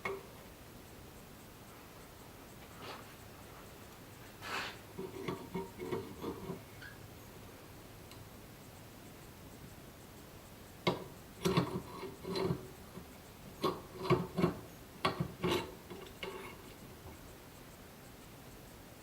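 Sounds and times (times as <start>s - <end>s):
hard objects knocking and clicking: 13.6s - 16.4s.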